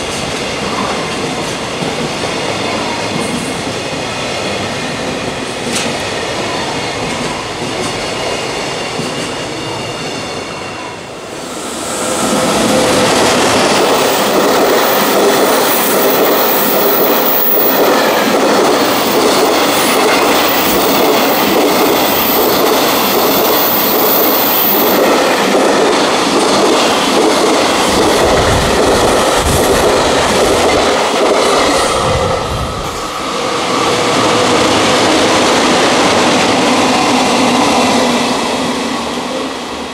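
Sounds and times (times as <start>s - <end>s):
freight train wheels clattering: 12.0s - 38.6s.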